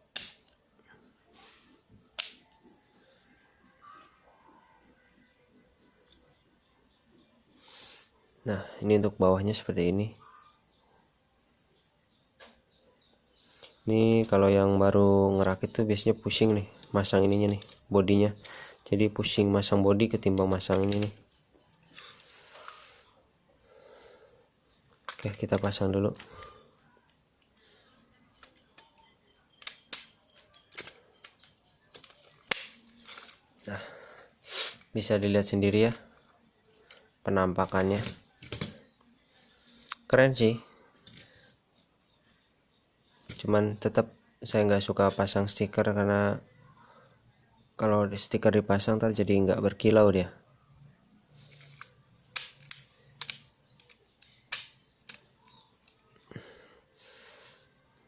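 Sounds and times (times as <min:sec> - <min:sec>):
plastic snap: 0:00.1 - 0:00.6, 0:02.2 - 0:02.6, 0:29.5 - 0:33.4, 0:51.5 - 0:56.0
plastic clicks and taps: 0:28.4 - 0:33.4, 0:51.5 - 0:56.0.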